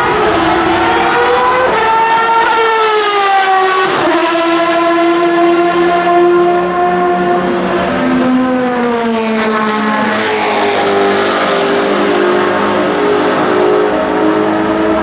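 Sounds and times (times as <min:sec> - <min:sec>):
racing engine at high revs: 0:00.0 - 0:15.0.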